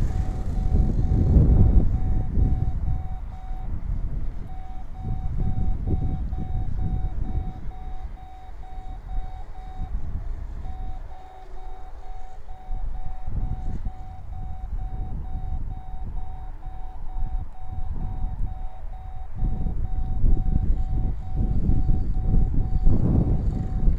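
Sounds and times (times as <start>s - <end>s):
rapid electronic beeping: 0.0s - 3.8s, 4.4s - 10.0s
wind buffeting microphone: 0.0s - 23.9s.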